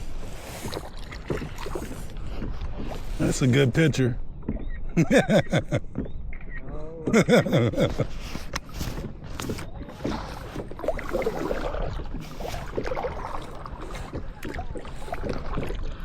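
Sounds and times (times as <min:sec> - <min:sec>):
paddle splashing in water: 0:00.0 - 0:04.8, 0:07.3 - 0:16.0
person speaking: 0:03.2 - 0:04.2.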